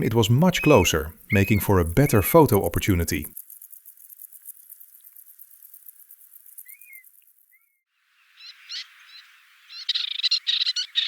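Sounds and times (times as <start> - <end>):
chattering animal calls: 0.0 - 7.6
faint high-pitched ticking: 0.0 - 7.6.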